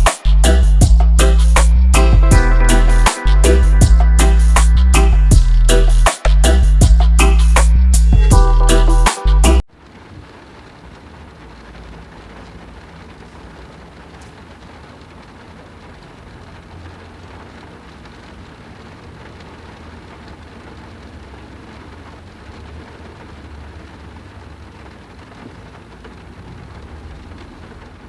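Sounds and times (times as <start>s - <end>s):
low road rumble: 0.0s - 28.0s
rain and wet tyres hissing: 9.7s - 28.0s.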